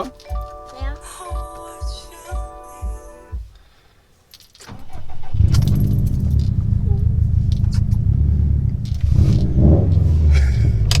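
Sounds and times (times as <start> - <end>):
car engine idling: 4.7 - 11.0.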